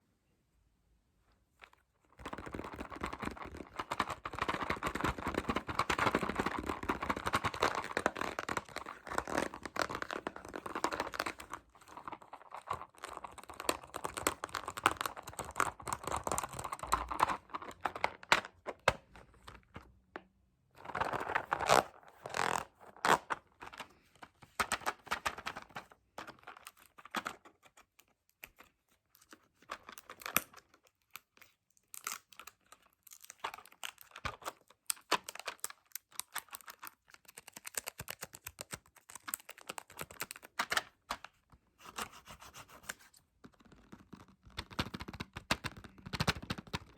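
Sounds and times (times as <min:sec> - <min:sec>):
quick tapping and scratching: 0:02.2 - 0:18.4, 0:41.8 - 0:46.9.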